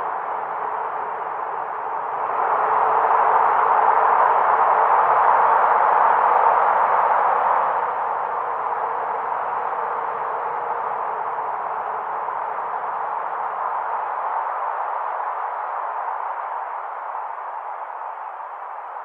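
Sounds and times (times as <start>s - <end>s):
wind blowing with whistling: 0.0s - 19.0s.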